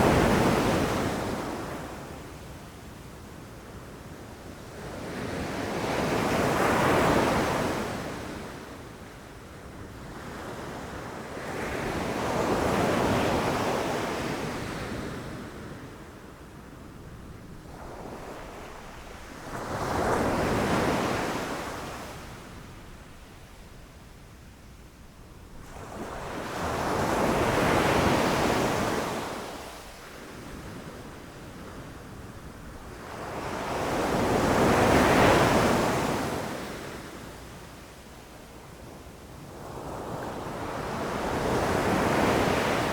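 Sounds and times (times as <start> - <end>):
low rumble of the sea: 15.3 - 34.8.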